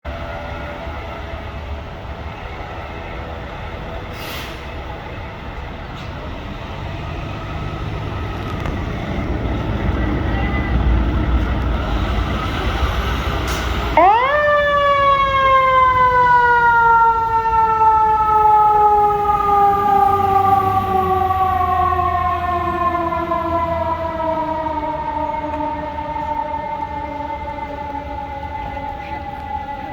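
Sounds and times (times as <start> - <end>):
fire engine rumble: 0.0 - 29.9
mechanical siren wailing: 14.0 - 29.9.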